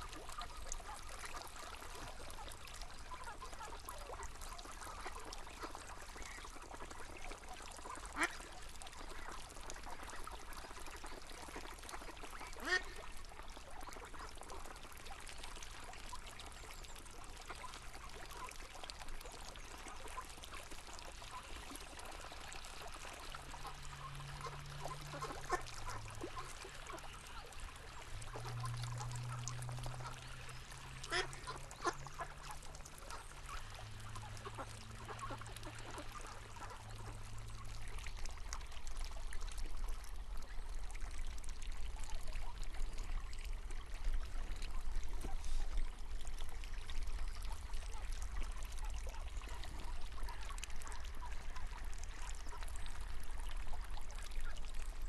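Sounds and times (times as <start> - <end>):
low steady hum: 0.0 - 55.0
river water flowing: 0.0 - 55.0
ducks quacking: 11.9 - 13.0, 23.5 - 37.2.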